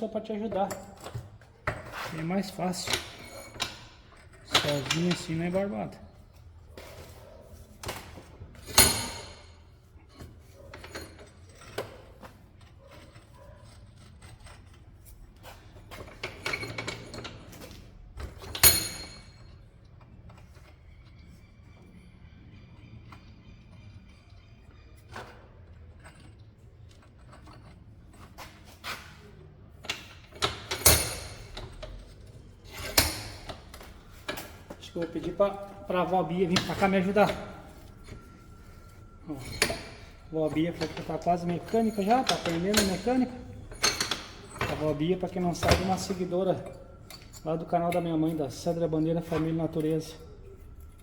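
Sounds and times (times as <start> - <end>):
metal tools knocking: 0.3 - 21.2, 29.8 - 50.9
ringing metallic clank: 30.4 - 50.3.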